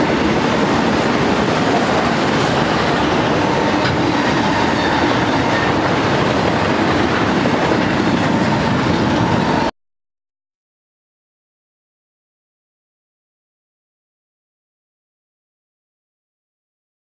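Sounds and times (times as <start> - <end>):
freight cars rolling on rails: 0.0 - 9.7.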